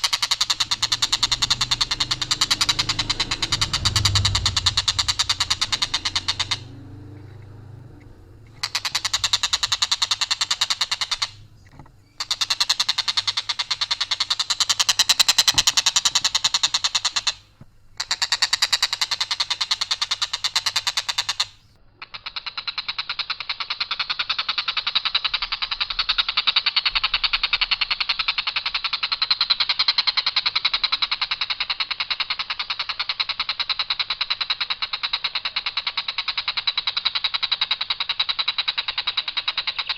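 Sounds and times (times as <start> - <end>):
kingfisher rattling call: 0.0 - 17.4.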